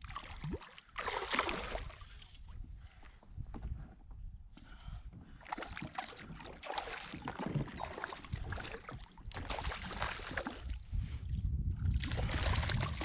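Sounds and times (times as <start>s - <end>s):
water splashing against kayak: 0.0s - 2.6s, 5.2s - 11.2s, 11.8s - 13.0s.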